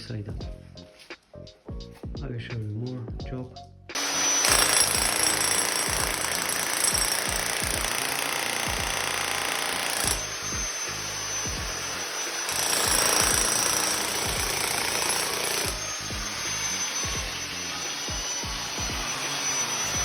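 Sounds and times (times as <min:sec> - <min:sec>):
background music: 0:00.0 - 0:20.0
power tool running hard: 0:04.0 - 0:20.0.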